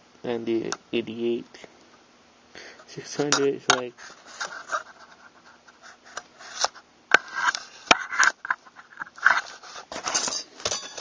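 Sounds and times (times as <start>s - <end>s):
rubbing and scraping of gun parts: 3.1s - 11.0s.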